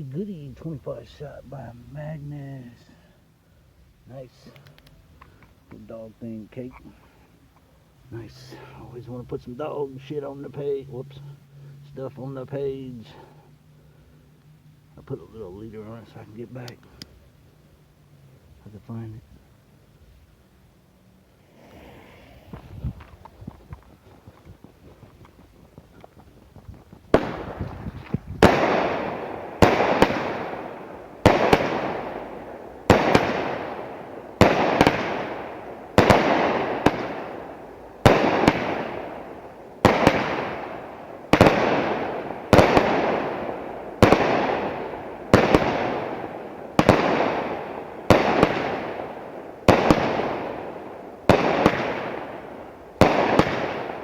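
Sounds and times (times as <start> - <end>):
fireworks bangs: 21.4 - 54.0.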